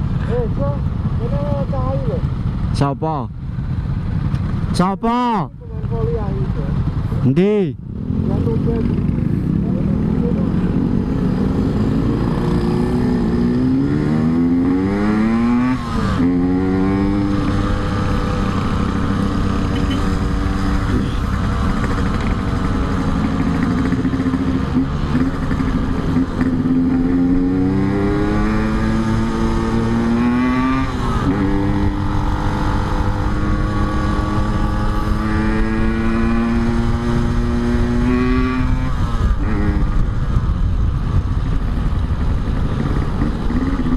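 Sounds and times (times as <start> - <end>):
motorcycle engine accelerating: 3.4 - 43.9
wind on microphone: 10.7 - 43.9.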